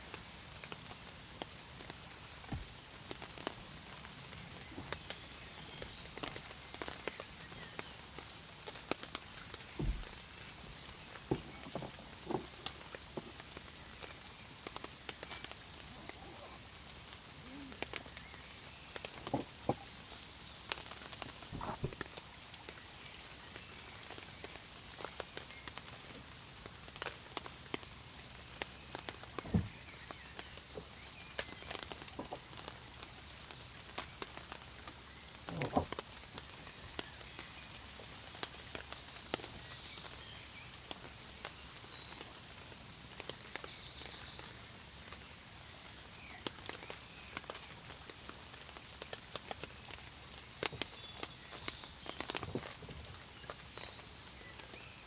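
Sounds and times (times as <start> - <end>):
raindrops tapping on surface: 0.0 - 55.0
steady rain: 0.0 - 55.0
deep thuds: 9.7 - 10.2, 21.5 - 22.0, 29.4 - 29.8.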